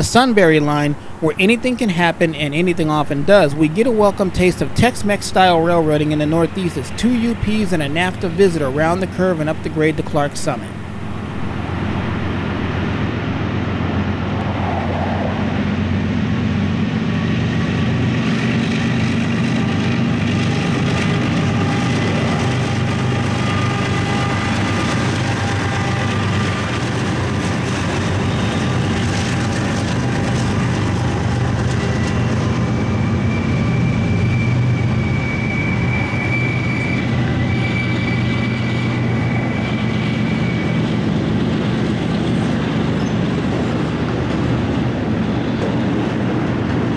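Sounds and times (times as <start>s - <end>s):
diesel locomotive engines droning: 0.0s - 46.9s
thin high squeal: 33.0s - 40.9s.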